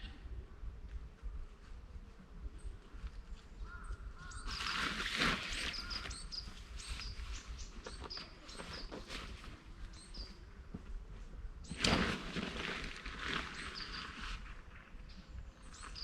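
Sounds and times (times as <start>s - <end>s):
rustling: 4.4s - 9.9s, 11.7s - 15.2s
small bird chirping: 5.5s - 9.1s, 9.9s - 10.4s, 15.1s - 16.0s.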